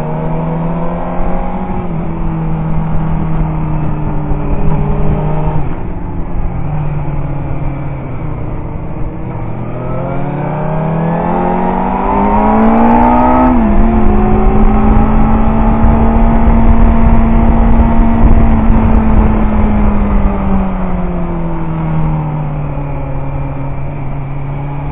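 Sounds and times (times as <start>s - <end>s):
motorcycle engine revving: 0.0s - 24.9s
wind rush: 0.1s - 24.9s.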